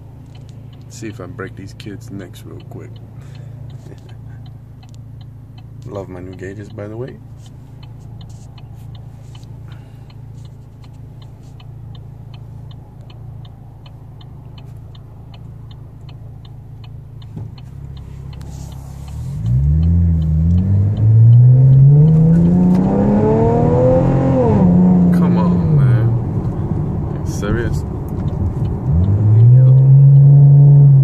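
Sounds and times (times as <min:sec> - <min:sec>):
car engine accelerating hard: 0:12.5 - 0:31.0.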